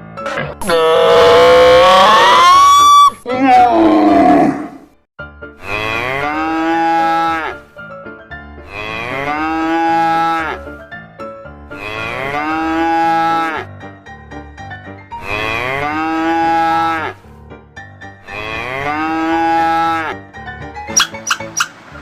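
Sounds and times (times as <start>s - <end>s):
cow mooing: 3.5s - 4.9s, 5.6s - 7.6s, 8.6s - 10.7s, 11.8s - 13.7s, 15.2s - 17.2s, 18.2s - 20.2s.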